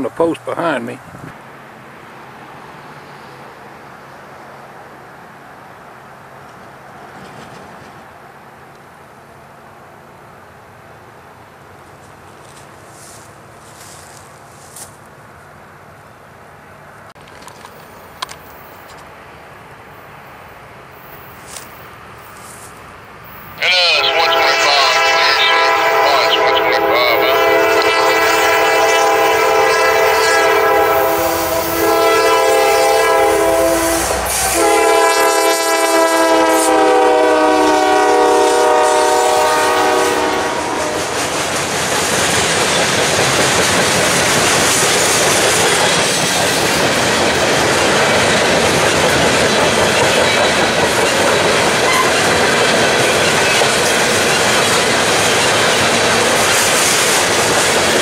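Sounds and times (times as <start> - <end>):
freight cars rumbling and clacking: 6.4 - 8.2, 17.0 - 19.1, 41.0 - 58.0
locomotive air horn blasts: 23.7 - 41.2.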